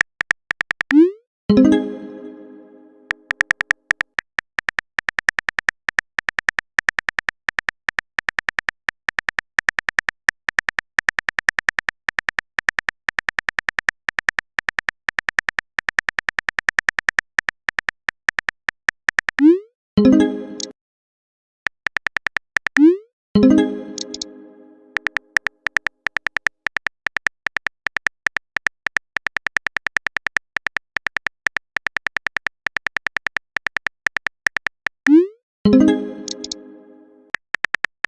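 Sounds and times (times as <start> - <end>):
electronic keyboard typing clicks: 0.0 - 20.8, 21.7 - 38.0
chat chime: 1.0 - 3.4, 20.0 - 20.7, 23.4 - 25.1, 35.1 - 37.3.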